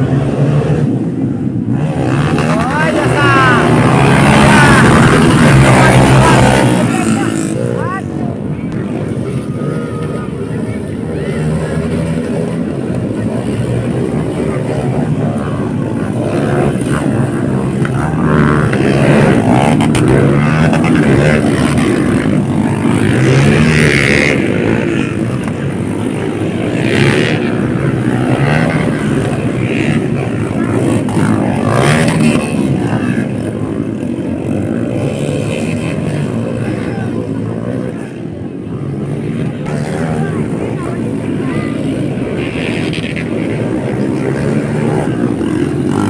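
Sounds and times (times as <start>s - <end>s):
dirt bike engines revving: 0.0s - 46.0s.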